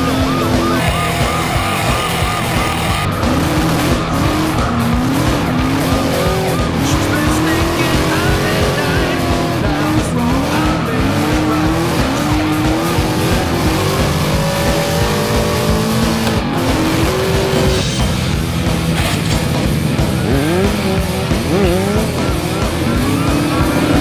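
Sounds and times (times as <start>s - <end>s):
tyres squealing: 0.0s - 17.9s
background music: 0.0s - 24.0s
engines revving: 0.0s - 24.0s.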